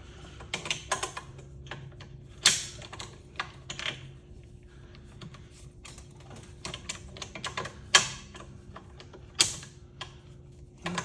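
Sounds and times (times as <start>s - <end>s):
clicks and knocks of fan parts: 0.3s - 4.1s, 10.8s - 11.0s.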